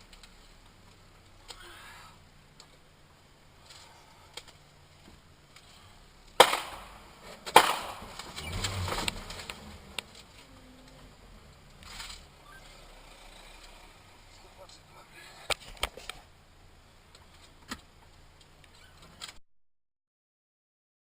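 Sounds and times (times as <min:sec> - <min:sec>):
crunching and rumble: 0:02.2 - 0:16.4
car collision impact: 0:06.4 - 0:10.4.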